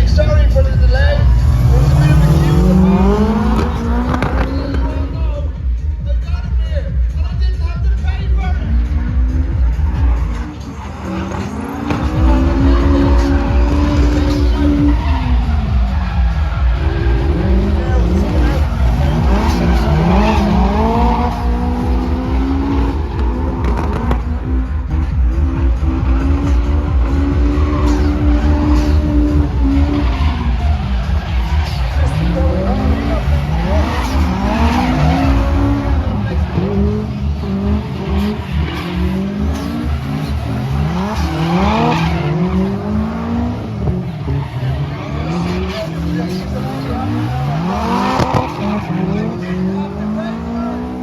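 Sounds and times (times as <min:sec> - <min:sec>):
tyres squealing and skidding: 0:00.0 - 0:06.5, 0:07.8 - 0:51.0
car engine at high revs: 0:00.0 - 0:51.0
low rhythmic thumping: 0:11.6 - 0:38.4.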